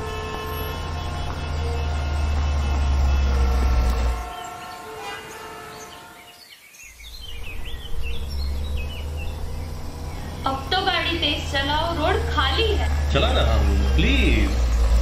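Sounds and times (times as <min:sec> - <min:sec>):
car engine and road rumble: 0:00.0 - 0:04.6, 0:07.0 - 0:15.0
vehicle horns: 0:00.0 - 0:06.5
birds chirping: 0:00.0 - 0:15.0.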